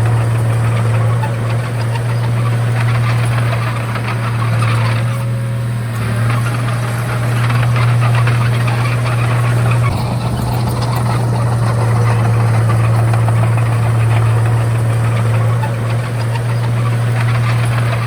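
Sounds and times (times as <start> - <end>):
bulldozer diesel engine drone: 0.0 - 18.0.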